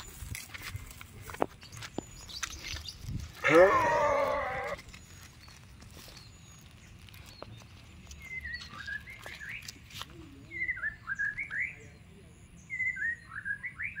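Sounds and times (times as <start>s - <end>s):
songbird whistling phrase: 10.5s - 12.0s, 12.6s - 14.0s.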